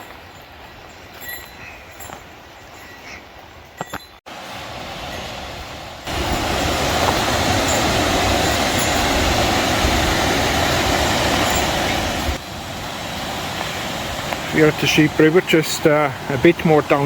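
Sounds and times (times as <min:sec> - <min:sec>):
river water rushing: 0:04.3 - 0:17.0.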